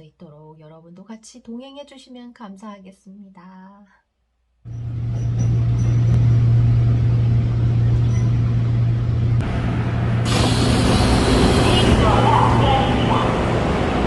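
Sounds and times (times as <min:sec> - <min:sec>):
traffic noise: 0:04.7 - 0:14.0
vehicle engine humming: 0:04.7 - 0:14.0
loud hiss: 0:09.8 - 0:12.3.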